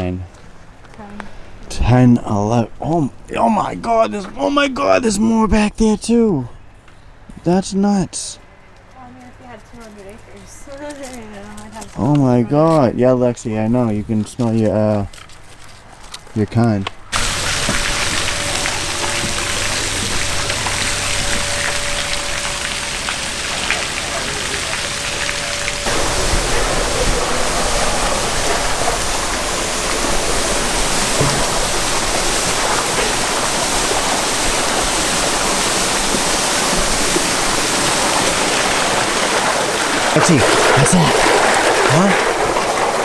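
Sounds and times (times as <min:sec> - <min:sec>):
waterfall rushing: 0:17.2 - 0:43.0.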